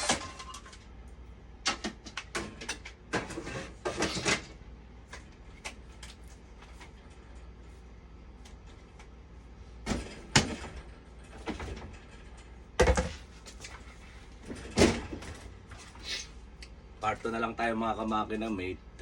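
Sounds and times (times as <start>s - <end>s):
low steady hum: 0.0s - 19.0s
hard objects knocking and clattering: 12.8s - 13.3s.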